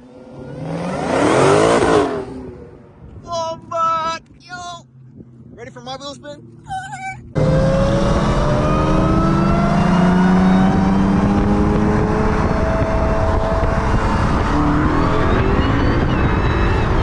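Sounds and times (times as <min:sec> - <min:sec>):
car engine at full throttle: 0:00.0 - 0:03.2, 0:07.4 - 0:17.0.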